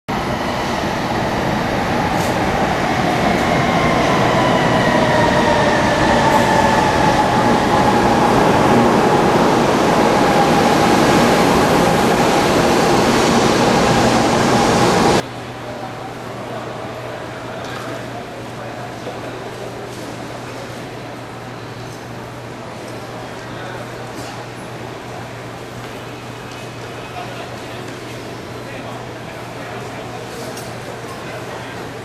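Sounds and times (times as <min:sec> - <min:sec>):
high speed train rushing: 0:00.1 - 0:15.3.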